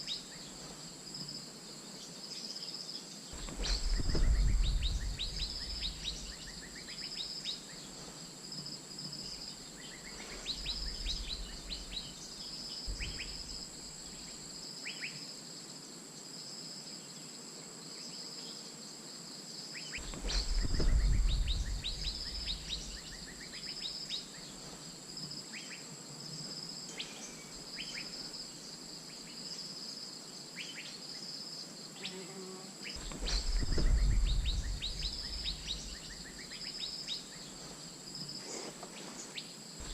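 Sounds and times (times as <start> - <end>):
insect chorus with high trill: 0.0 - 39.9
sharp bird chirps: 3.3 - 7.9, 19.8 - 24.5, 33.0 - 37.5
low rumbles: 3.4 - 6.8, 20.0 - 23.4, 33.0 - 36.4.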